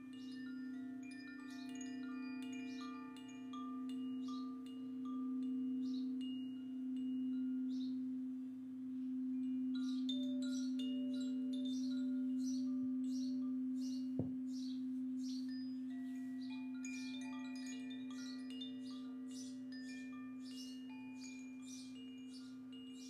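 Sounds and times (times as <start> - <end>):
singing bowl hum: 0.0 - 23.0
bird chirping: 7.4 - 8.1, 9.7 - 23.0
soft tap: 14.2 - 14.4.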